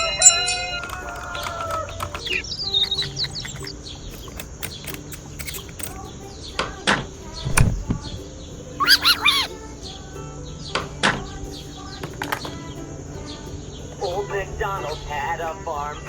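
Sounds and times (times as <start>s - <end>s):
birds chirping: 1.4s - 6.2s, 7.4s - 9.6s
louder bird calls: 8.8s - 9.5s.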